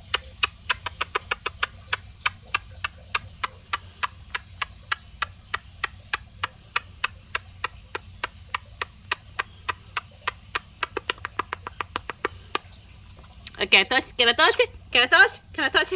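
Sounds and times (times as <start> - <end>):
rapid sharp clicks: 0.0 - 12.7.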